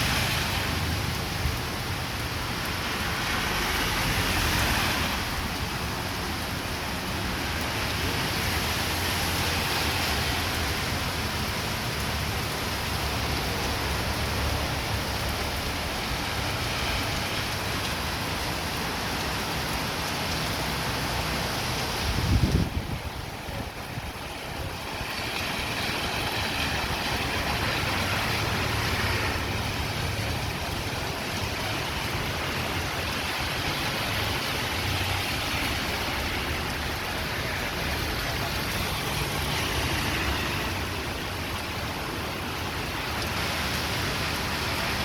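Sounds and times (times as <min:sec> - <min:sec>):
strong wind blowing: 0:21.8 - 0:31.0.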